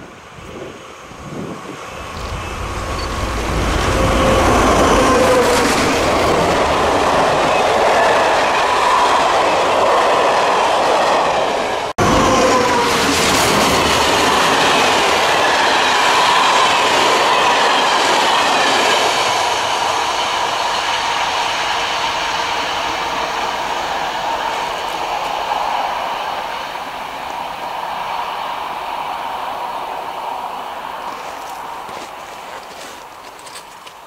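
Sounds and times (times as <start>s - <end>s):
train wheels rumbling on rails: 0.0s - 34.0s
clickety-clack over rail joints: 31.1s - 34.0s.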